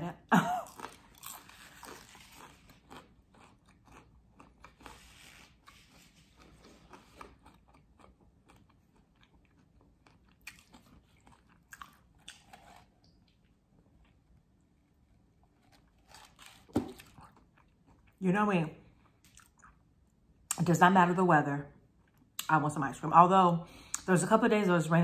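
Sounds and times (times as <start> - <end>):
person chewing crunchy food: 0.6 - 18.2, 19.0 - 20.0.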